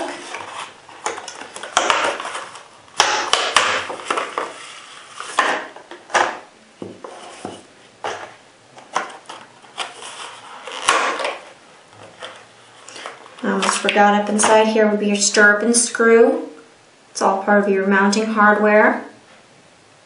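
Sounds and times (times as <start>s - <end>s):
packaging rustling: 0.0s - 13.9s
packaging scraping: 0.0s - 13.9s.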